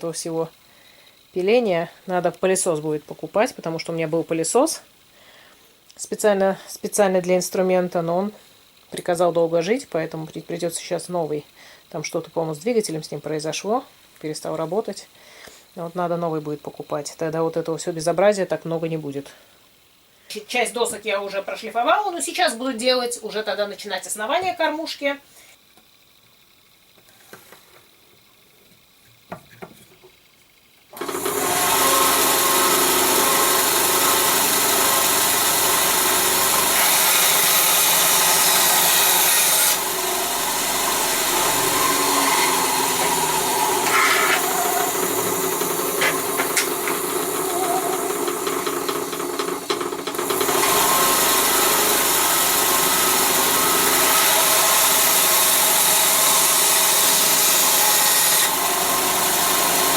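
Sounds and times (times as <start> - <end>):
power tool motor working wood: 30.9 - 59.9.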